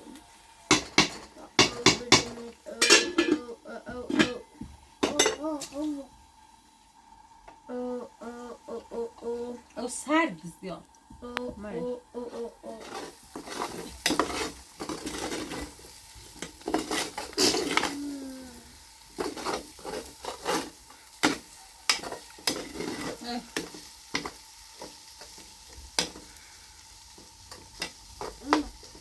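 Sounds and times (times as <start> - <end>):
utensil scraping a pot: 12.2 - 18.2, 19.0 - 26.4.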